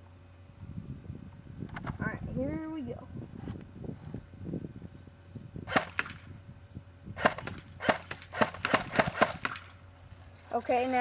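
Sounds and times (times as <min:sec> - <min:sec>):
airsoft gun single shots: 0:05.7 - 0:06.3, 0:07.2 - 0:09.7.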